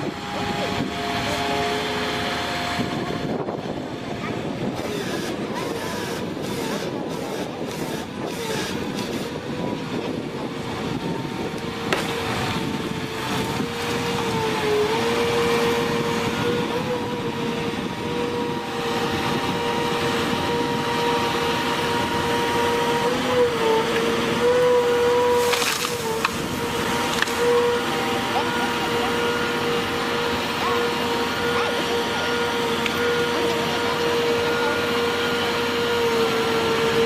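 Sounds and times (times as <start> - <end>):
heavy machine engine whining: 0.0 - 37.0.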